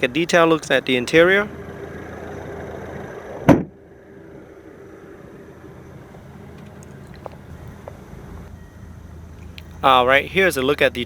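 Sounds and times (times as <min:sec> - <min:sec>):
quiet steady hum: 0:00.0 - 0:11.0
engine switch-off thump: 0:03.5 - 0:03.8
car engine idling: 0:06.0 - 0:11.0.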